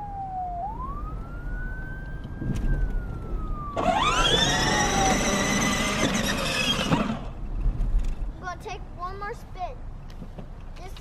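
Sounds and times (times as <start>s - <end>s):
harsh siren tone: 0.0s - 7.2s
thin wailing siren: 0.0s - 7.2s.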